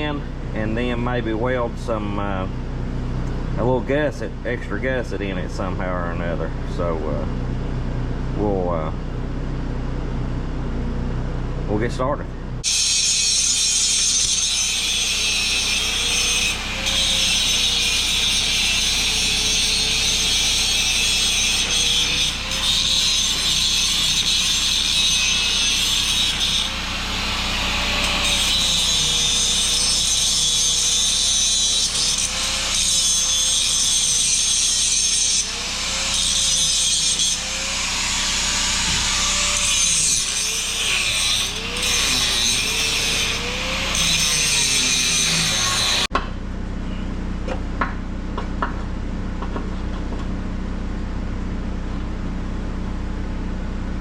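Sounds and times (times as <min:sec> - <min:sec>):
angle grinder grinding steel: 0:12.6 - 0:46.1.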